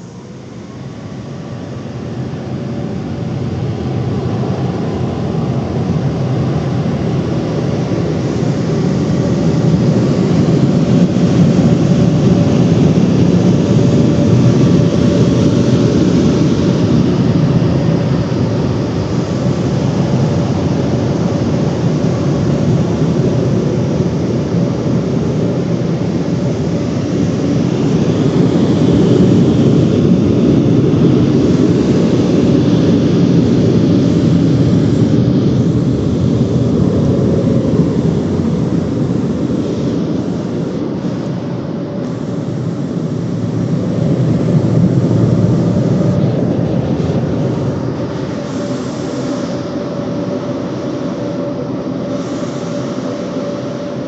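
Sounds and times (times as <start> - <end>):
car wash machinery rumbling: 0.0 - 54.0.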